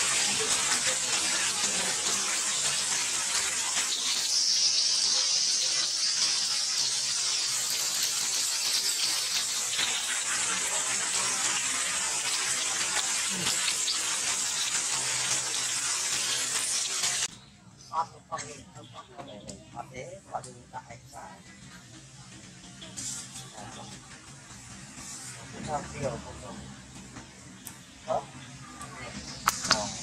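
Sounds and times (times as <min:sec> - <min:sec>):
heavy rain pouring: 0:00.0 - 0:17.3.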